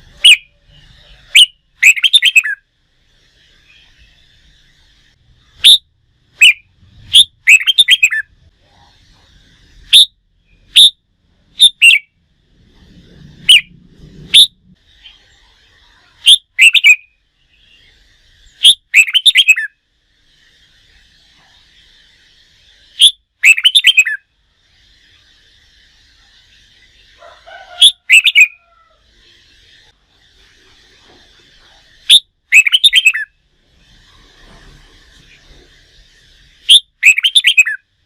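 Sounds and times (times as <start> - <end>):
bird whistling song: 0.1 - 2.6, 3.5 - 8.4, 9.8 - 11.0, 11.6 - 12.2, 13.4 - 15.5, 16.2 - 19.8, 21.9 - 24.3, 27.8 - 28.7, 31.8 - 33.4, 35.2 - 37.9
other birds chattering: 6.4 - 10.9, 26.2 - 33.3.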